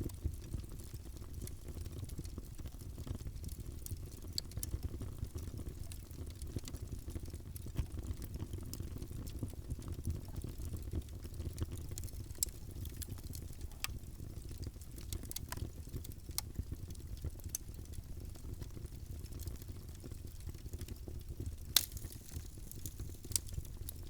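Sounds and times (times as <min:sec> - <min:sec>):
low rumble of flames: 0:00.0 - 0:24.0
wood fire crackling: 0:00.0 - 0:24.0
sharp pops of fire: 0:21.6 - 0:24.0.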